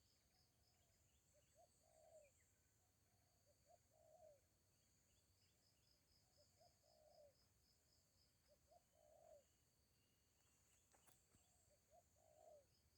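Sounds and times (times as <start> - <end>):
dove cooing: 11.9 - 12.6.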